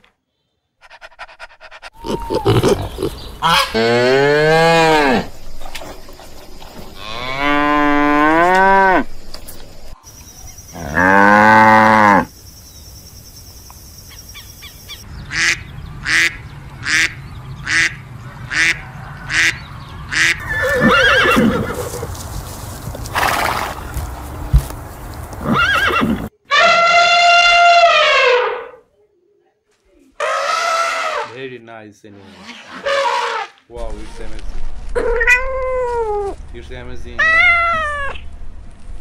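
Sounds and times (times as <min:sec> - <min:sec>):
ducks quacking: 0:00.9 - 0:04.0, 0:15.2 - 0:20.5
elephant trumpeting: 0:01.9 - 0:05.3, 0:25.4 - 0:28.8, 0:30.2 - 0:31.4, 0:32.2 - 0:33.6
cow mooing: 0:02.0 - 0:05.3, 0:07.0 - 0:09.1, 0:10.8 - 0:12.3.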